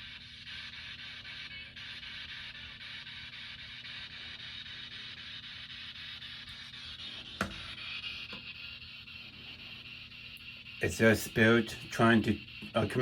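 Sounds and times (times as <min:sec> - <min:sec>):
room noise hum and hiss: 0:00.0 - 0:13.0.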